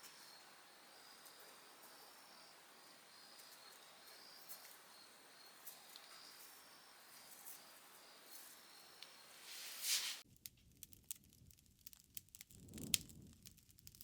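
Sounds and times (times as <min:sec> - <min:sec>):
insects trilling: 0:00.0 - 0:09.6
campfire crackles: 0:00.0 - 0:14.0.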